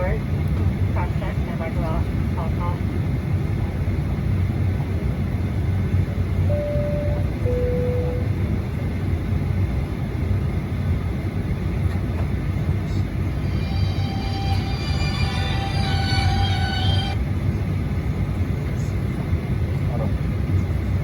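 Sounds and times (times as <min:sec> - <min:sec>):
cabin air rumble: 0:00.0 - 0:21.0
two-tone cabin chime: 0:06.5 - 0:08.3, 0:13.4 - 0:17.2
music: 0:13.3 - 0:17.2.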